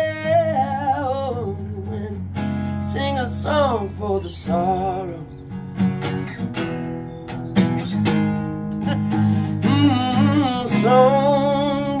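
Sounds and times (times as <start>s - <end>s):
acoustic guitar strumming: 0.0s - 12.0s
person singing long notes: 8.8s - 12.0s.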